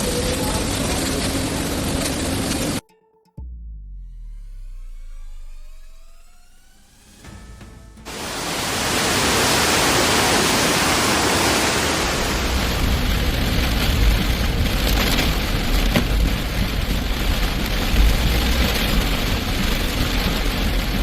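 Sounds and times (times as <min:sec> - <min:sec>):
heavy rain hissing: 0:00.0 - 0:02.8, 0:07.3 - 0:21.0
low rumble: 0:03.4 - 0:21.0.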